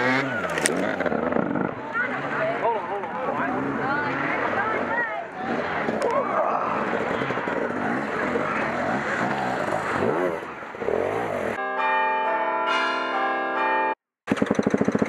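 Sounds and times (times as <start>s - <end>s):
dirt bike engine revving: 0.0s - 11.6s, 14.3s - 15.0s
bell-like tone: 11.6s - 14.0s.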